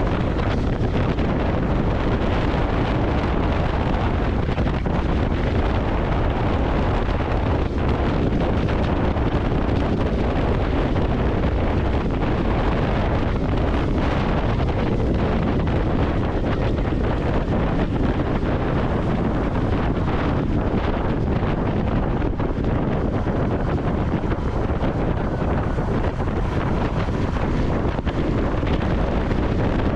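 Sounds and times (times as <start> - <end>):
motorcycle engine cruising: 0.0 - 29.9
wind rushing over microphone: 0.0 - 29.9.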